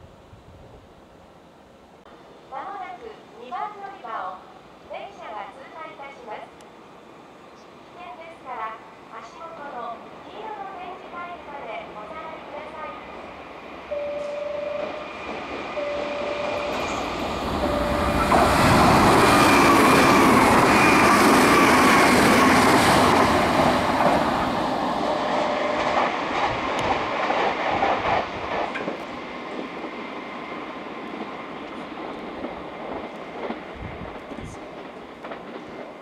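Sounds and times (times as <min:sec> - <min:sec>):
short tones: 0:13.9 - 0:15.2, 0:15.8 - 0:18.6.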